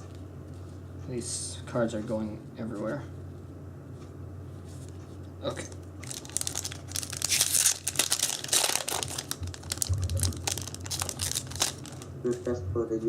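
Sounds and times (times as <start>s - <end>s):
foil wrapper tearing and crinkling: 6.0s - 12.1s.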